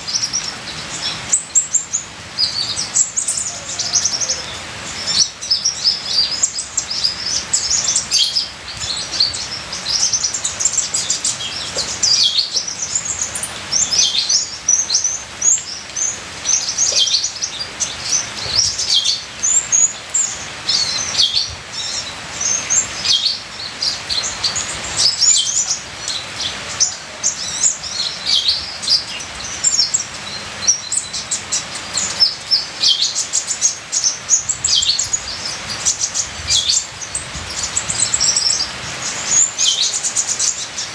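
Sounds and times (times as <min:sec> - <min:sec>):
trickling water: 0:00.0 - 0:40.9.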